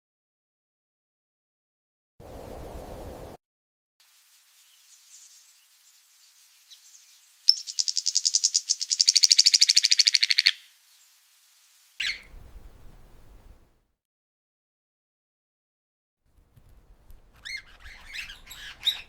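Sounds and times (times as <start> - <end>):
bird singing fast trill: 4.5 - 12.4, 17.4 - 19.0.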